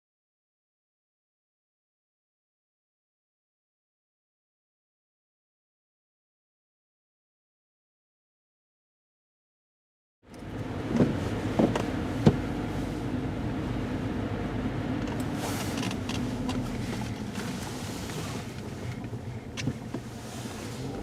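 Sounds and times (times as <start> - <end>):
car engine and road hum: 10.2 - 21.0.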